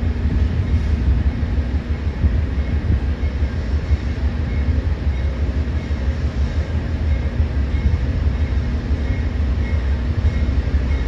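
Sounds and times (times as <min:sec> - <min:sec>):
train rumbling: 0:00.0 - 0:11.0
faint high wheel squeal: 0:02.5 - 0:11.0.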